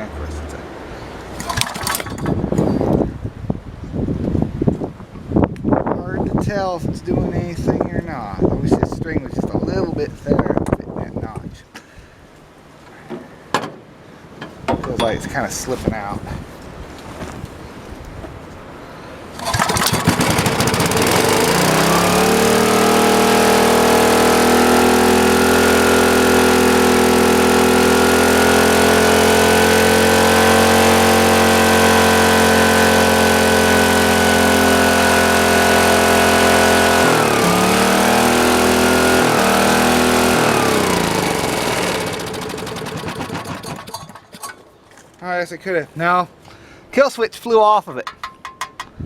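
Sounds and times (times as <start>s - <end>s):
generator engine running: 1.3s - 2.9s, 19.3s - 44.5s.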